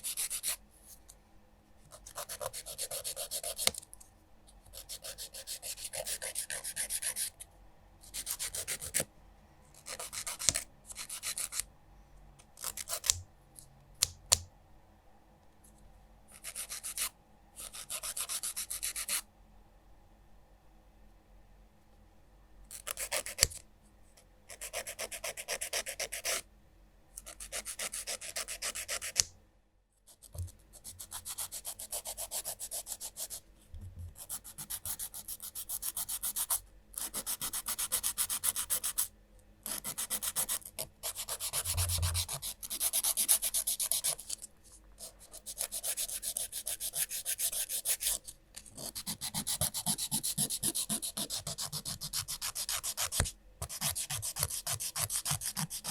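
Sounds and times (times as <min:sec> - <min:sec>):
nail file scratching fingernails: 0:00.0 - 0:00.6, 0:02.0 - 0:03.8, 0:04.7 - 0:07.4, 0:09.8 - 0:11.6, 0:12.6 - 0:13.2, 0:16.4 - 0:19.2, 0:24.5 - 0:26.4, 0:27.2 - 0:29.3, 0:30.1 - 0:33.4, 0:34.2 - 0:44.4, 0:45.0 - 0:55.9.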